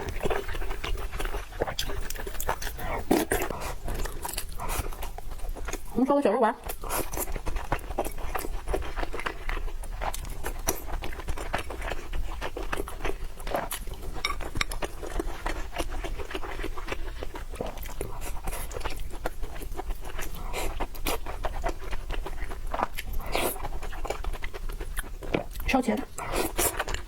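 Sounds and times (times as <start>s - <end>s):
person chewing with wet mouth sounds: 0.0s - 27.0s.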